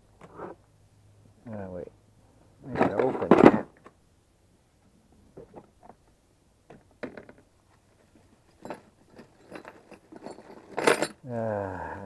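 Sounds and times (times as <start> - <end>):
small metal tools clicking and rattling: 8.5 - 11.2.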